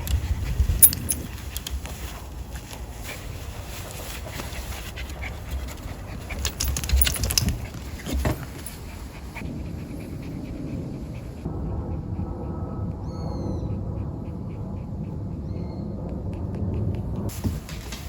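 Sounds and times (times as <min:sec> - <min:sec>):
dog panting: 0:00.0 - 0:18.0.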